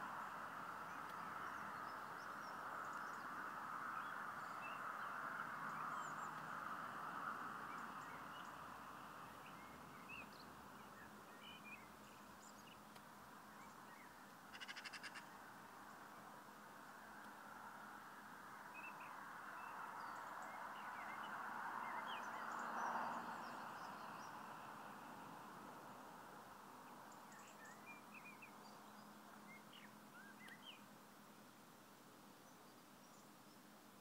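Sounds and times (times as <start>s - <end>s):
faint steady hiss: 0.0s - 34.0s
rapid chattering bird call: 14.5s - 15.2s
bird chirps: 27.2s - 30.8s.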